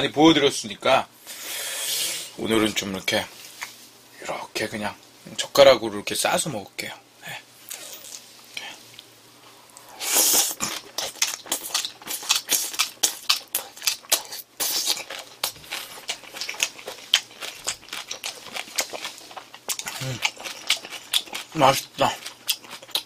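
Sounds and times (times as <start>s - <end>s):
rapid chewing clicks: 10.7s - 23.0s.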